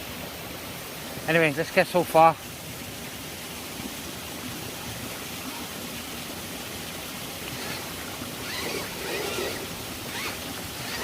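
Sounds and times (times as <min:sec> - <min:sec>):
stream and waterfall rushing: 0:00.0 - 0:11.0.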